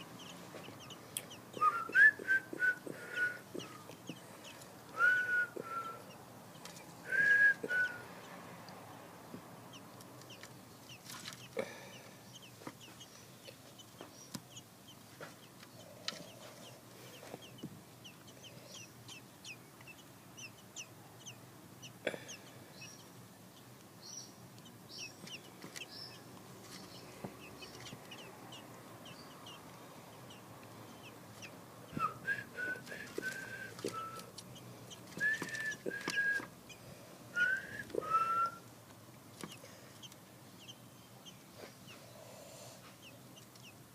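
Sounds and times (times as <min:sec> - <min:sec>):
bird whistled notes: 0:35.2 - 0:36.5, 0:37.4 - 0:38.6.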